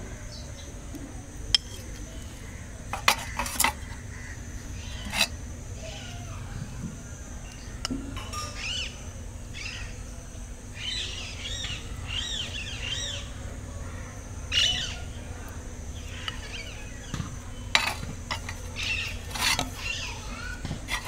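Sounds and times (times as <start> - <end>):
bird chirping: 10.7 - 13.4.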